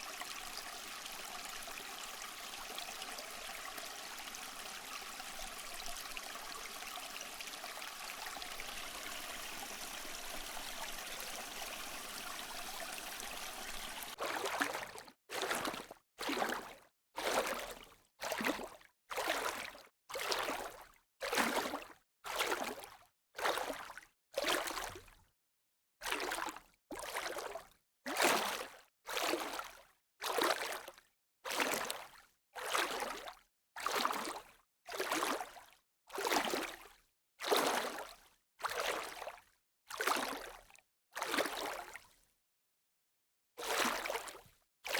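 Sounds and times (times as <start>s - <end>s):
rushing water: 0.0s - 14.5s.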